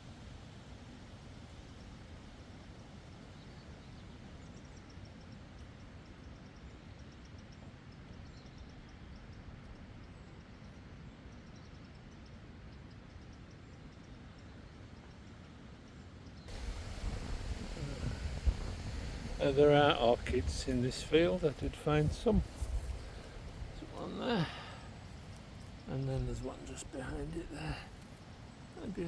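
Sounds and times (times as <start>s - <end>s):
rustling: 16.5s - 29.0s
wind rumble on microphone: 16.5s - 29.0s.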